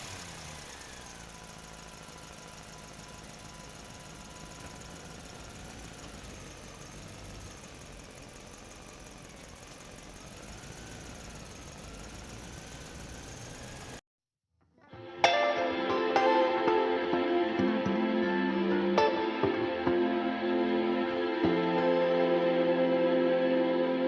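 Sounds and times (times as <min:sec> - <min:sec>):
small electric motor whining: 0:00.0 - 0:14.0.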